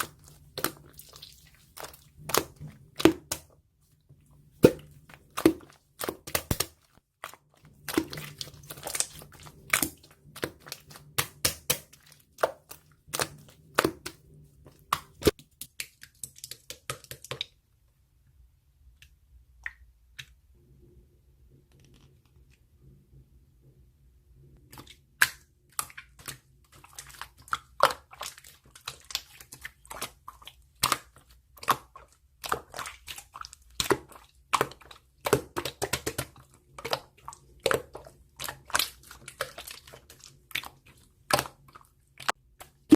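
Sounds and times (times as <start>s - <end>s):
air bubble pops: 4.6s - 5.6s
slime squished by hand: 4.6s - 17.5s.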